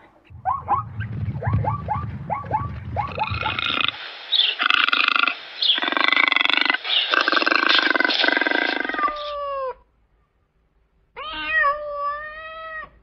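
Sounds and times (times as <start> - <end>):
low rumble: 0.1 - 4.2
zebra yelping: 0.3 - 9.4
zebra rasping growl: 2.3 - 4.0, 4.6 - 9.2.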